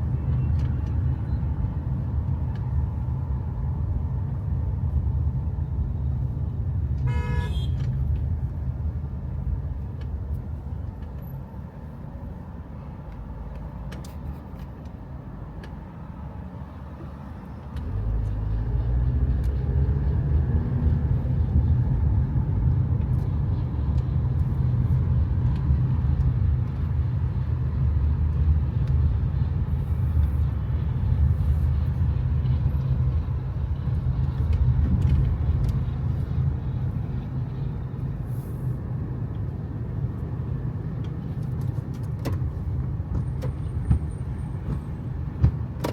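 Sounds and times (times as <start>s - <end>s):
road traffic rumble: 0.0s - 45.9s
vehicle horn beep: 7.0s - 7.9s.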